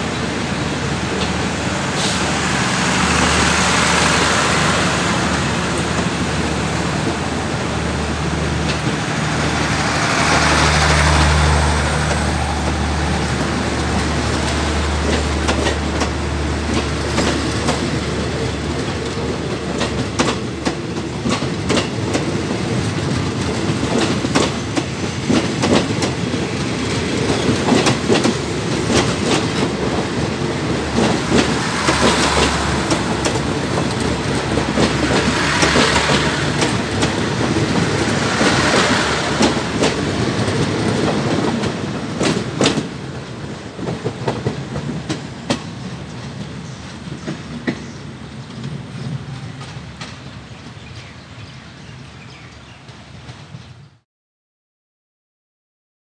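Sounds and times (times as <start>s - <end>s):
train hiss: 0.0s - 14.1s
train coaches rumbling past: 0.0s - 54.0s.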